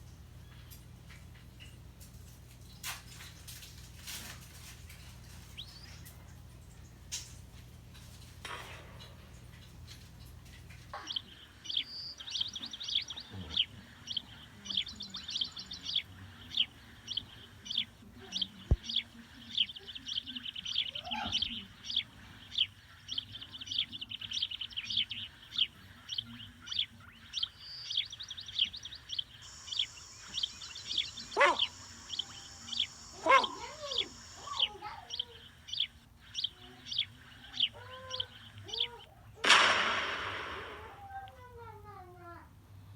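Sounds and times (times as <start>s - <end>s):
high bird-like chirps: 26.2s - 41.4s
low sliding calls: 29.4s - 34.8s, 38.2s - 41.4s.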